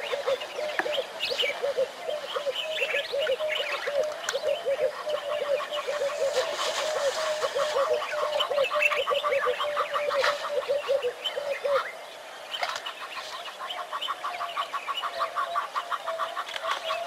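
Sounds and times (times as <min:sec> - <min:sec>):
rapid bird chirping: 0:00.0 - 0:11.9.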